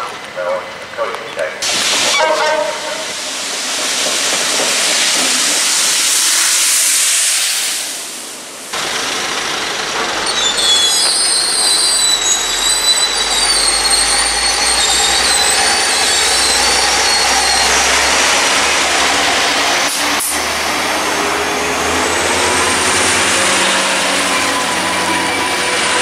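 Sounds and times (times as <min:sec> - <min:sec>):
water jets hissing: 0:01.6 - 0:08.9
locomotive engine rumble: 0:08.4 - 0:26.0
high-pitched wheel squeal: 0:10.2 - 0:18.6.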